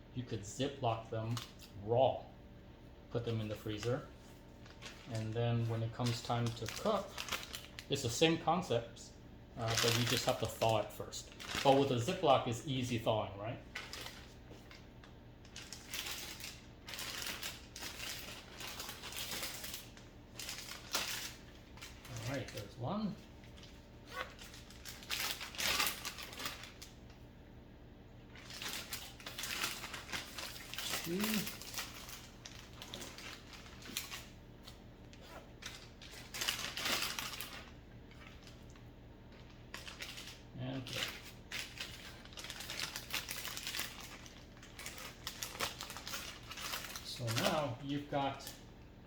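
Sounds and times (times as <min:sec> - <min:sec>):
plastic bag rustling and crinkling: 0:03.2 - 0:08.8, 0:09.6 - 0:27.2, 0:28.2 - 0:48.6.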